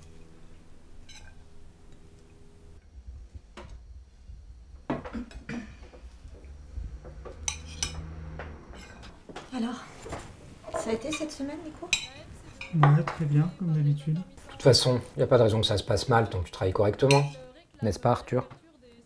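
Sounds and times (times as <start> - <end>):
low steady hum: 0.0 - 19.0
cutlery clinking on plates: 1.0 - 2.0, 7.3 - 9.2, 17.0 - 17.5.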